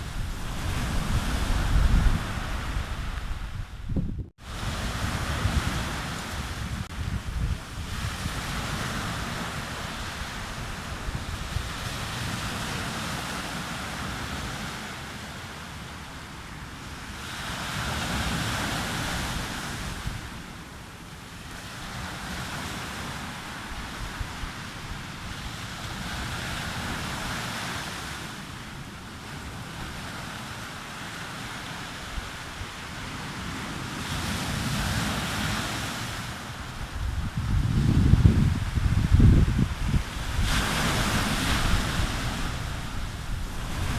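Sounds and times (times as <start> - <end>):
sea waves breaking on beach: 0.0 - 3.8, 4.4 - 43.9
wind rumbling on microphone: 0.0 - 14.6, 21.9 - 27.7, 31.6 - 43.9.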